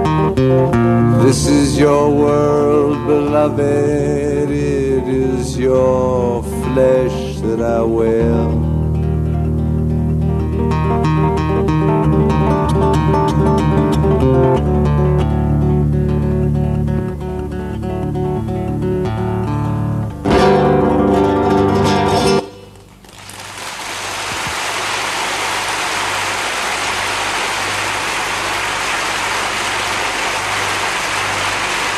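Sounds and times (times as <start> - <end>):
fingerpicked acoustic guitar: 0.0 - 22.9
steady hiss-like noise: 18.8 - 31.9.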